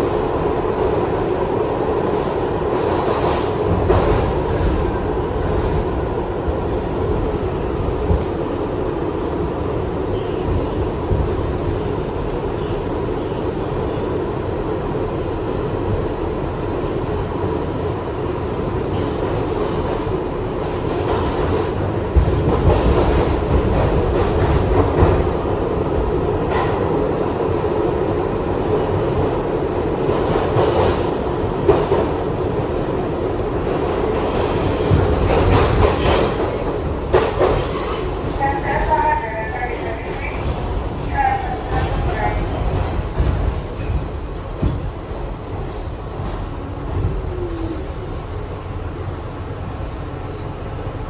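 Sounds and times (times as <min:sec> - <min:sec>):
subway car rumbling: 0:00.0 - 0:51.0
wheels clacking over rail joints: 0:34.3 - 0:47.6.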